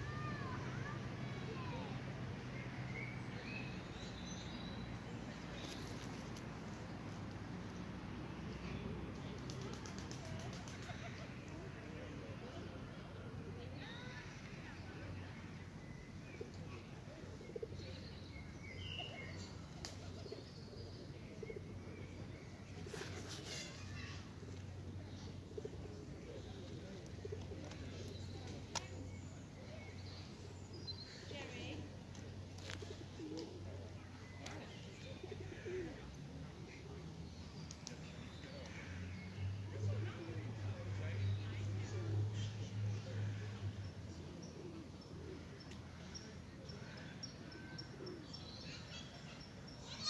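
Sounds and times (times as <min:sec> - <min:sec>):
faint outdoor background noise: 0:00.0 - 0:50.0
small birds chirping: 0:12.9 - 0:50.0.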